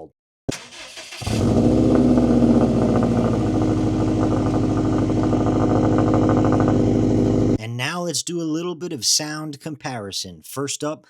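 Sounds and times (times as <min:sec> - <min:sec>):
car engine starting and idling: 0:00.5 - 0:07.6.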